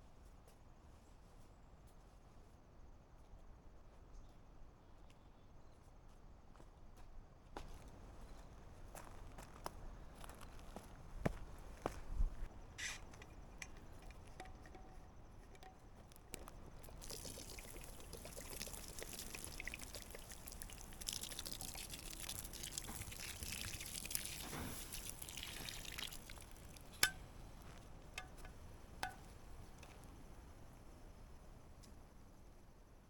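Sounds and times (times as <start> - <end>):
liquid pouring: 15.6 - 29.2.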